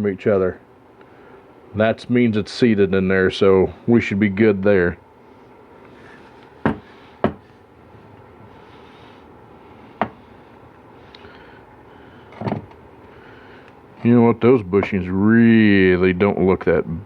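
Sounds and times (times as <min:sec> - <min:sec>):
tools knocking on a workbench: 0:06.6 - 0:07.5, 0:10.0 - 0:10.2.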